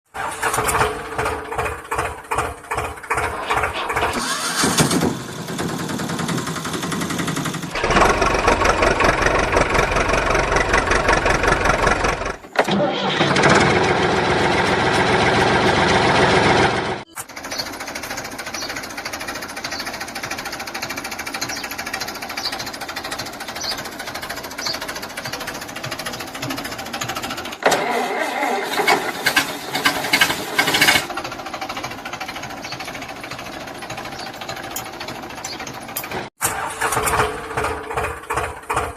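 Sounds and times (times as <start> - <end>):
small motor running: 17.2 - 27.5.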